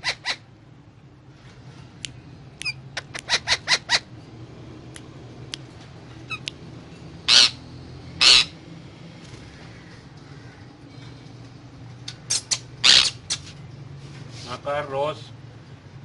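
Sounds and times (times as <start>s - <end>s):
parakeet harsh squawks: 0.0s - 0.5s, 2.6s - 4.1s, 7.2s - 8.6s, 12.3s - 13.5s
parakeet clicks and chirps: 2.1s - 3.5s, 12.0s - 13.6s.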